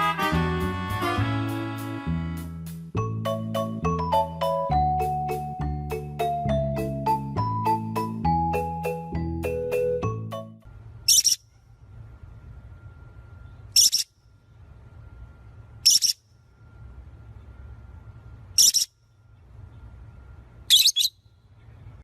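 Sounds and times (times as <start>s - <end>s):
low steady hum: 0.0s - 22.0s
bird's shrill calls: 11.1s - 11.5s, 13.7s - 14.2s, 15.8s - 16.2s, 18.6s - 19.0s, 20.7s - 21.3s.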